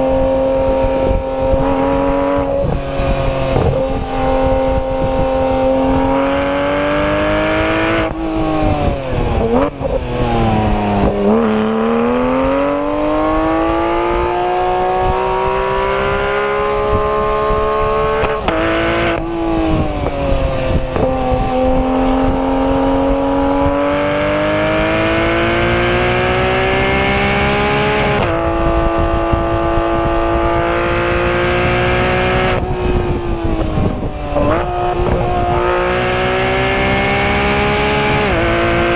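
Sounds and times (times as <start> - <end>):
car engine accelerating hard: 0.0 - 38.9.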